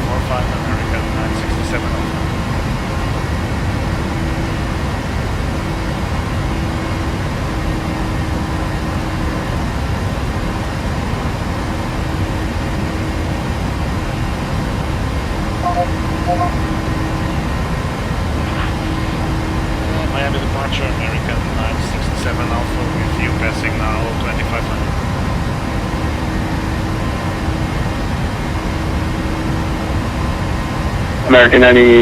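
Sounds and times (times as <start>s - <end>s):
aircraft engine and airflow rush: 0.0s - 32.0s
faint hum: 12.6s - 30.7s
short tones: 15.6s - 16.6s.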